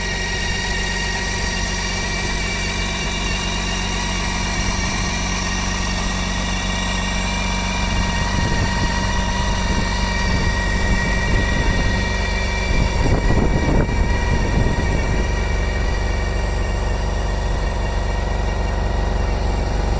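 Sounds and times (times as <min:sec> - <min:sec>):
motorcycle engine idling: 0:00.0 - 0:19.9.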